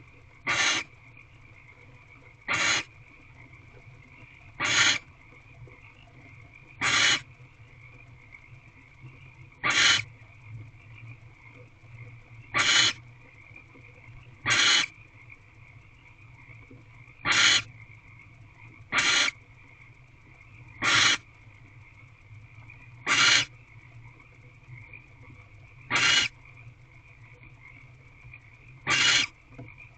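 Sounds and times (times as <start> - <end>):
barn owl hissing calls: 0.5 - 0.9, 2.5 - 2.9, 4.6 - 5.1, 6.8 - 7.3, 9.6 - 10.1, 12.5 - 13.0, 14.4 - 15.0, 17.2 - 17.7, 18.9 - 19.4, 20.8 - 21.2, 23.0 - 23.6, 25.8 - 26.4, 28.8 - 29.4.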